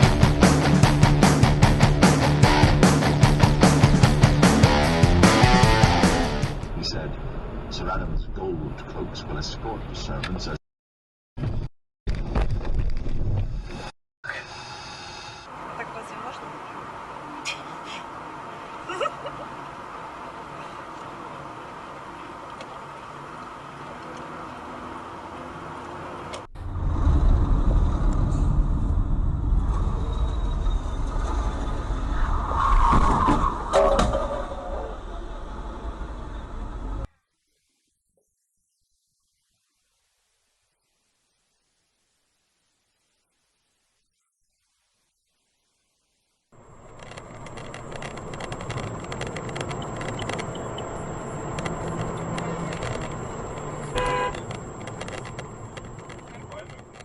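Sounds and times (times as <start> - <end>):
car road and engine noise: 0.0 - 10.6, 14.5 - 37.1, 46.5 - 57.0
short car horn: 53.9 - 54.5.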